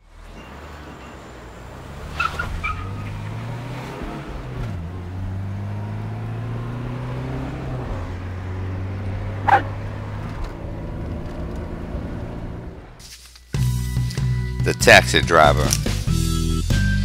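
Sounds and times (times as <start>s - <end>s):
car engine humming: 0.0s - 13.0s.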